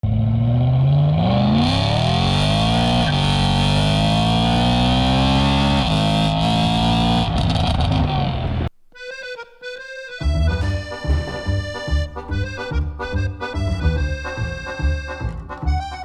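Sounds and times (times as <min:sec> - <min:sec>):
car engine accelerating: 0:00.0 - 0:08.7.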